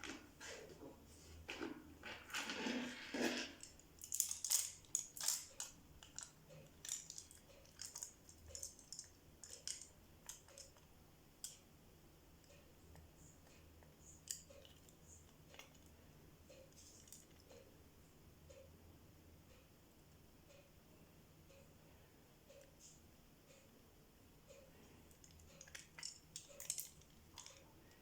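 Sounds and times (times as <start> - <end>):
small hard objects clicking: 3.6 - 11.6, 25.1 - 27.6.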